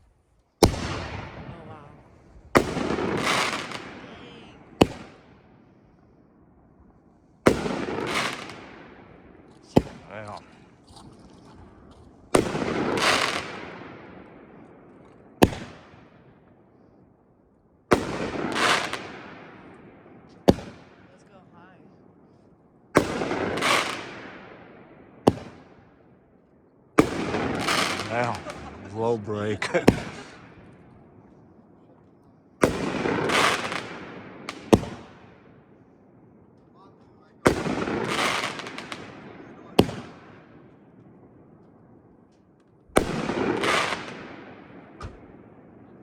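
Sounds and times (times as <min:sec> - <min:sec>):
firework bangs: 0:00.6 - 0:05.4, 0:07.5 - 0:16.3, 0:17.9 - 0:21.1, 0:22.9 - 0:25.8, 0:27.0 - 0:31.2, 0:32.6 - 0:35.7, 0:37.1 - 0:41.2, 0:42.9 - 0:46.0
hissing firework tail: 0:27.0 - 0:30.9
firework launch thump: 0:45.0 - 0:45.2.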